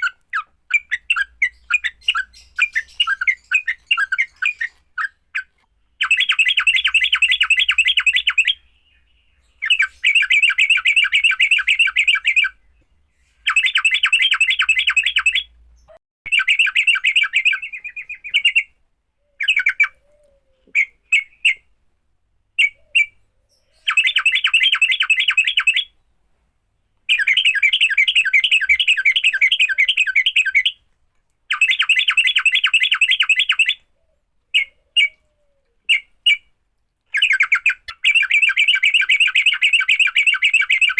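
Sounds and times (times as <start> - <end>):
short bird chirps: 0.0 - 21.6.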